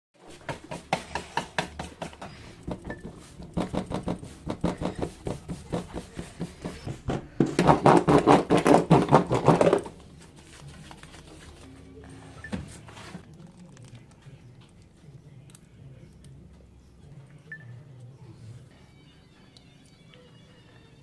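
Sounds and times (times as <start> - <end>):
rapid rhythmic knocking: 0.4 - 9.7.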